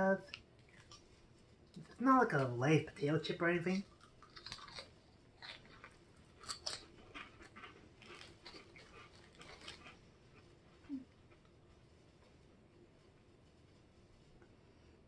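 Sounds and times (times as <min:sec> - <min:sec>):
crunching and chewing chips: 0:00.2 - 0:02.6, 0:03.2 - 0:11.5.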